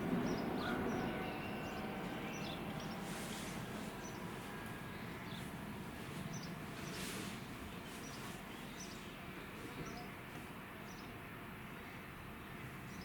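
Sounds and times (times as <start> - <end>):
small bird chirping: 7.7 - 10.1.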